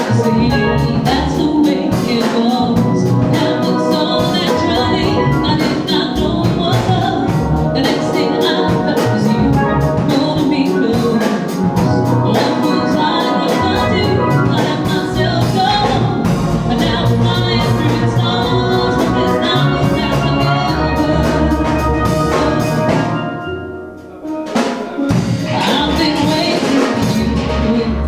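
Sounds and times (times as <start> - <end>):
steel pan music: 0.0 - 28.0
drum beat: 0.9 - 23.3, 24.2 - 27.4.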